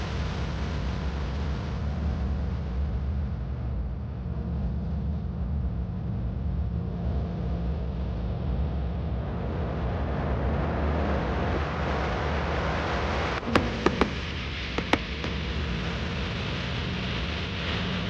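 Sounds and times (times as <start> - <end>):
tyre and road rumble: 13.4 - 16.1.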